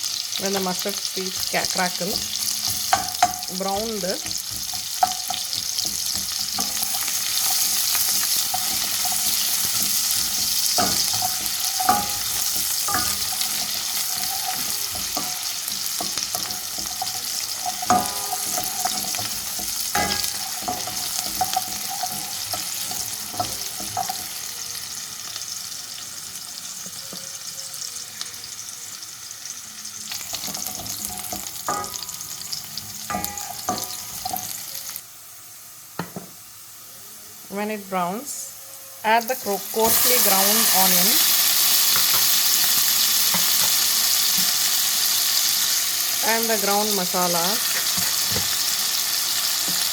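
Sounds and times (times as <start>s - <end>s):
onion sizzling in hot oil: 0.0s - 49.9s
spoon knocking against metal pot: 2.1s - 24.4s, 30.3s - 32.4s, 33.1s - 34.6s.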